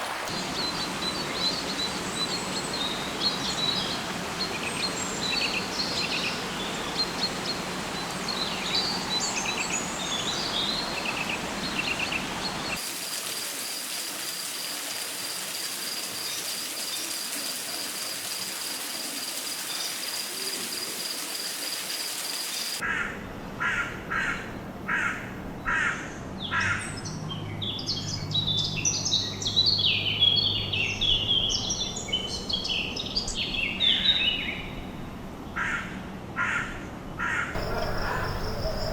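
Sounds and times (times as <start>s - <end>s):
insects trilling: 12.4s - 22.8s, 37.6s - 38.9s
hiss: 12.8s - 22.8s
harsh bird calls: 36.4s - 38.9s
dense chattering calls: 37.6s - 38.9s
high bird calls: 37.6s - 38.9s.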